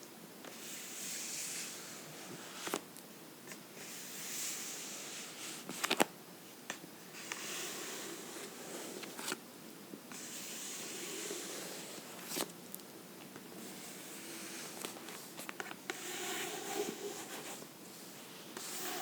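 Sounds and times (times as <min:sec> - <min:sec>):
fingernails scratching a book: 0:10.1 - 0:12.2, 0:15.9 - 0:17.6, 0:18.6 - 0:19.0.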